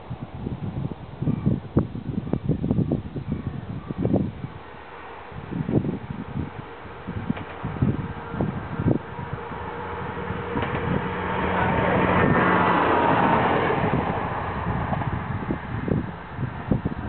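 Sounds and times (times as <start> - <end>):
diesel railcar passing: 4.1 - 17.0.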